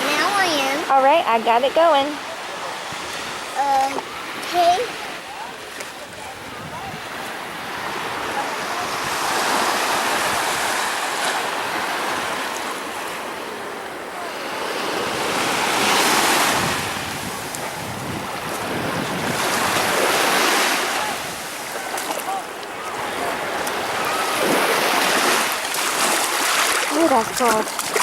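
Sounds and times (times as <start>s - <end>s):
waves breaking on beach: 0.0s - 28.0s.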